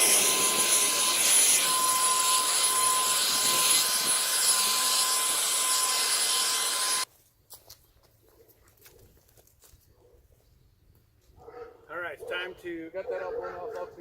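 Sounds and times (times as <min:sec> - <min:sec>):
leaf blower running: 0:00.0 - 0:07.1.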